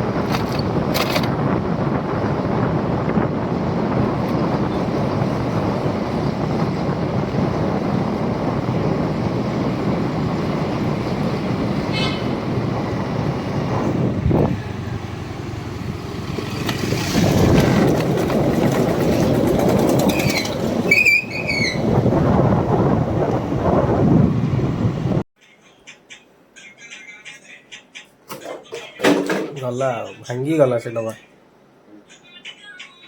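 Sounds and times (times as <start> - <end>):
traffic and road noise: 0.0 - 25.3.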